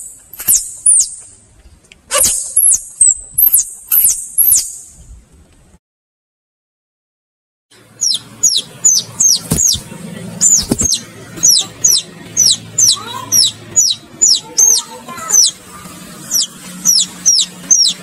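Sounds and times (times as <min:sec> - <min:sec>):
baby chicks peeping: 0:07.8 - 0:18.0.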